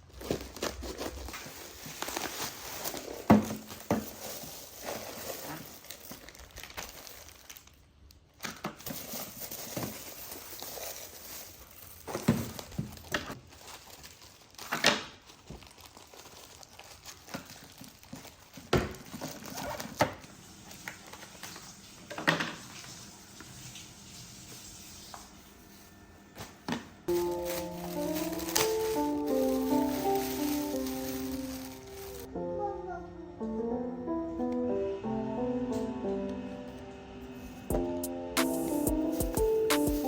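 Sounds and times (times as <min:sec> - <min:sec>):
plastic packaging crinkling: 0:00.0 - 0:23.8, 0:27.1 - 0:32.3.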